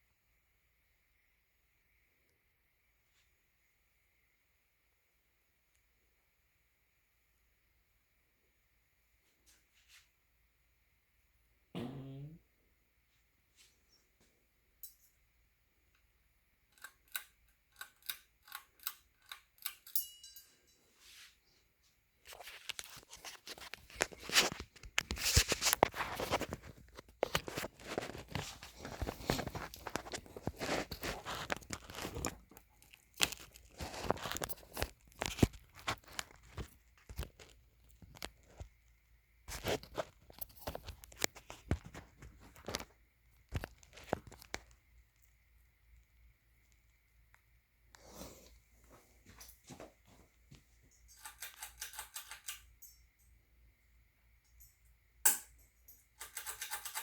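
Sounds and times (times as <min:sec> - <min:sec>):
sharp clicks with ringing: 0:19.6 - 0:20.6
wrapping crinkling and crunching: 0:22.3 - 0:38.7, 0:39.5 - 0:44.8.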